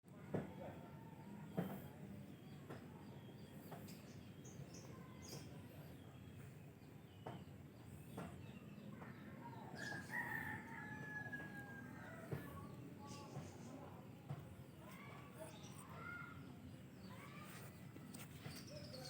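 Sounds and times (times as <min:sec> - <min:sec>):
rooster crowing: 0:09.8 - 0:12.6.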